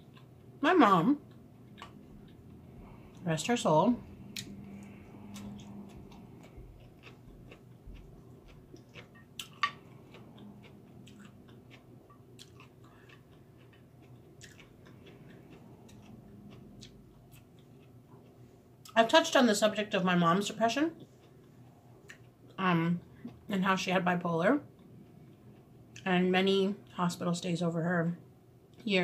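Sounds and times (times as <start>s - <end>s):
person chewing food: 0.0s - 0.6s, 1.2s - 19.0s, 20.9s - 23.5s.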